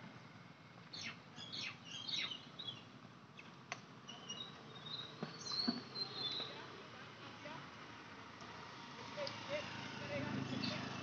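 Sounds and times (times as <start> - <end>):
birds chirping: 0.9 - 6.8, 10.4 - 11.0.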